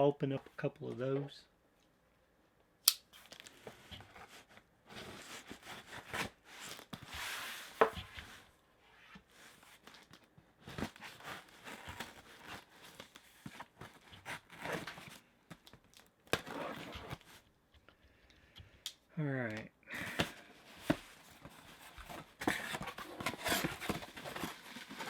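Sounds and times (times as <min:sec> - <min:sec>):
tape and cardboard tearing: 0:10.8 - 0:17.4, 0:21.9 - 0:25.0.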